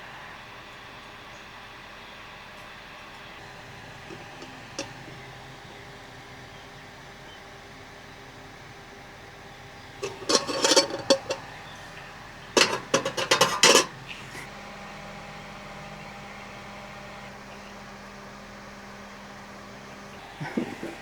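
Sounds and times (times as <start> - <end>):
steady low hum: 0.0 - 21.0
cookware and utensils clattering: 4.1 - 5.3, 10.0 - 11.5, 12.5 - 14.5.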